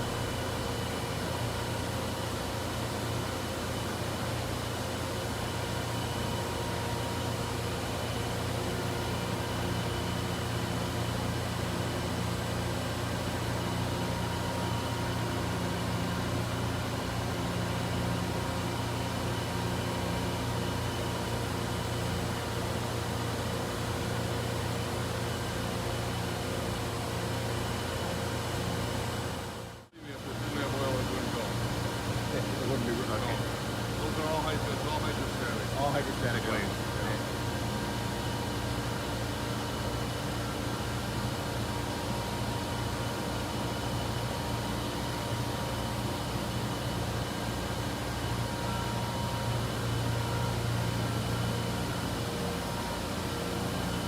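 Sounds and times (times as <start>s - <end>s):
steady machine tones: 0.0s - 1.6s
boring mill machine hum: 0.0s - 54.0s.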